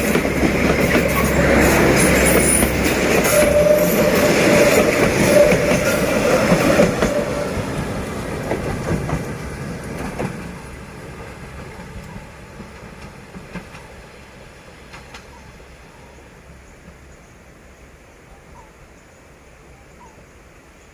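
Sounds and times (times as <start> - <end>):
wheels clicking over rail joints: 0.0 - 14.0
passenger train passing: 0.0 - 18.6.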